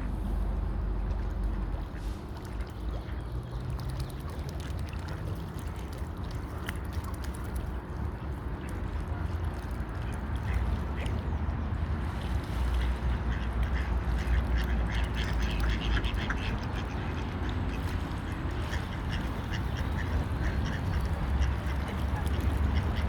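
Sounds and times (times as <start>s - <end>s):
steady low rumble: 0.0s - 3.9s
water splashing and gurgling: 0.0s - 23.0s
faint waterfowl calls: 12.7s - 23.0s.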